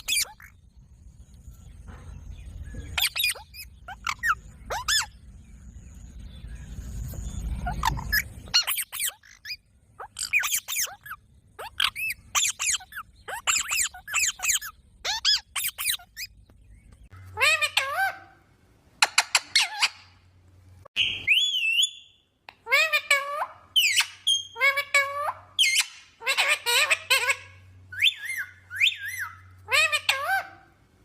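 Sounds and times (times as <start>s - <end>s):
parrot squawking: 0.0s - 0.5s, 2.9s - 5.2s, 7.6s - 16.3s, 17.2s - 18.4s, 19.0s - 20.2s, 22.6s - 30.8s.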